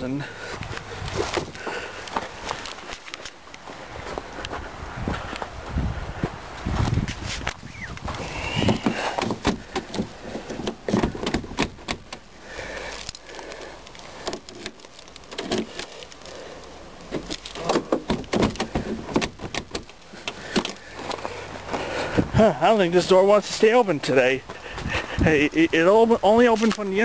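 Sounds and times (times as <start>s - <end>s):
car door handle and latch clicking: 8.8s - 12.2s.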